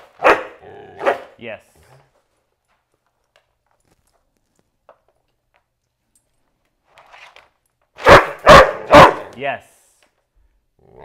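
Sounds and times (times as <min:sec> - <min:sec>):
dog barking: 0:00.2 - 0:01.3, 0:08.0 - 0:09.4.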